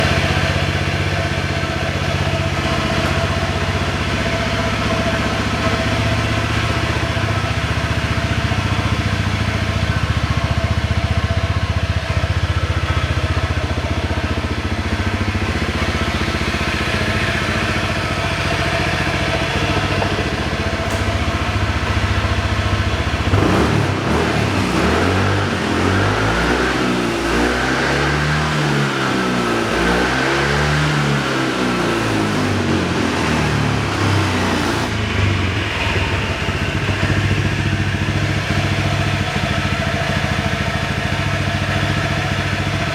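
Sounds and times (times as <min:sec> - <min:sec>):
scooter engine idling and revving: 0:00.0 - 0:42.9.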